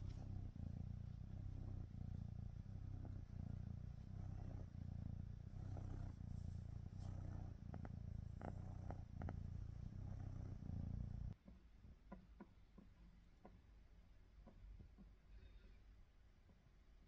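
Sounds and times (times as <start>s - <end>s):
kitten purring: 0.0s - 11.4s.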